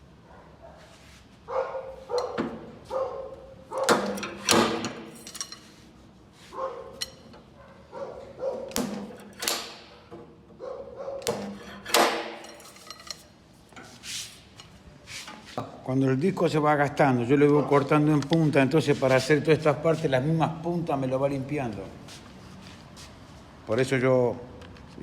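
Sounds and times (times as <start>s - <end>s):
dog barking: 0.2s - 4.0s, 6.5s - 7.0s, 7.6s - 8.8s, 10.6s - 11.4s.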